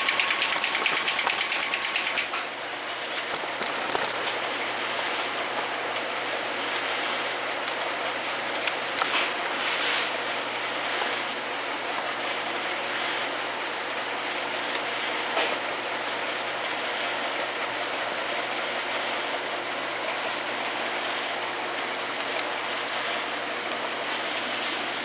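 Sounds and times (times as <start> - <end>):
machine clicks: 0.0 - 2.5
capping machine whirring: 0.0 - 25.0.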